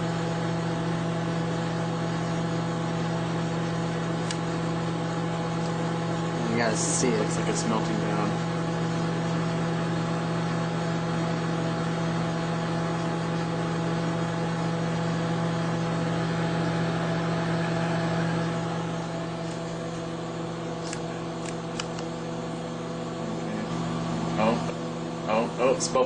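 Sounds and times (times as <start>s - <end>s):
microwave oven humming: 0.0s - 26.0s.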